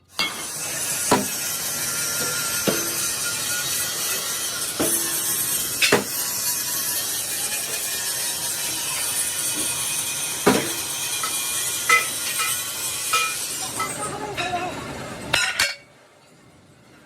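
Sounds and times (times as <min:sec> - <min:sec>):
metalworking machinery noise: 0:00.0 - 0:17.0
sharp metal knocks: 0:01.1 - 0:01.4, 0:05.8 - 0:06.2.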